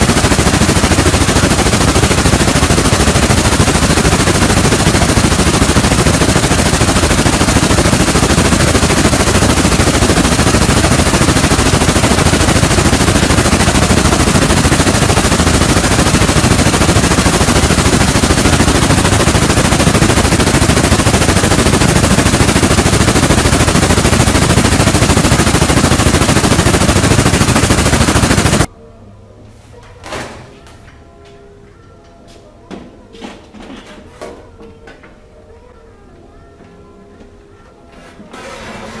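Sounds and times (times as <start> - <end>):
rapid-fire machine hammering clatter: 0.0 - 28.7.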